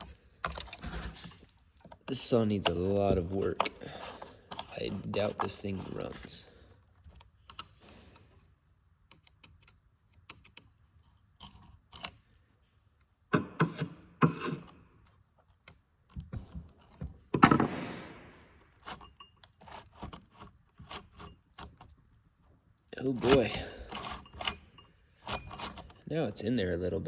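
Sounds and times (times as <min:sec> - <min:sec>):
loud rasping scrape: 0:02.3 - 0:06.7, 0:18.7 - 0:21.9, 0:23.0 - 0:26.1
metal clinks knocks and scrapes: 0:18.3 - 0:22.0, 0:23.1 - 0:26.0.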